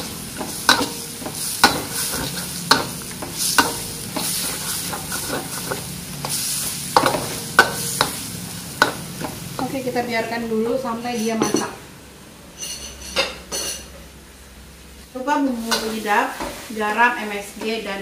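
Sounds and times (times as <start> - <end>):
utensil scraping a wok: 0.0 - 9.6
chicken skin sizzling in a wok: 0.0 - 10.4, 14.8 - 17.6.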